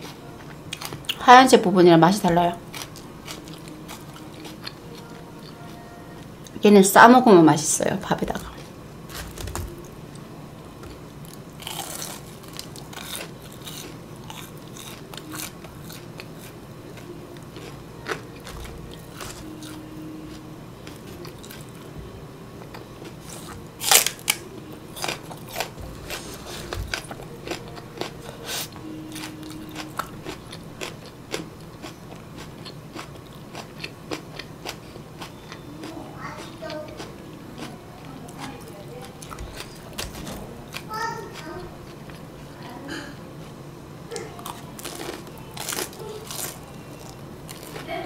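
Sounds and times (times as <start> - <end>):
crunching and chewing food: 0.0 - 1.3, 2.5 - 6.6, 8.3 - 21.9, 22.6 - 42.7, 43.4 - 48.0.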